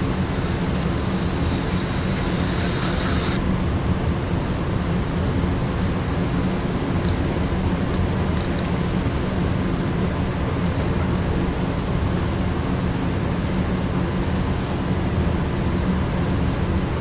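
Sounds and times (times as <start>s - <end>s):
slot car motors whirring: 0.0s - 3.4s.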